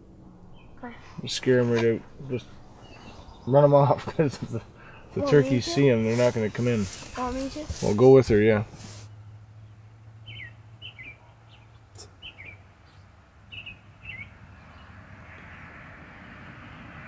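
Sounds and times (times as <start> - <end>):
songbird chirping: 0.0 - 15.6
soft hiss: 0.8 - 9.2.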